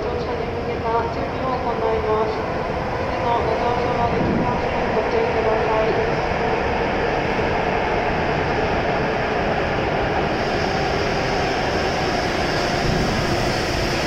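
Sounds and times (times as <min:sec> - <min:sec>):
electric train rolling past: 0:00.0 - 0:14.0.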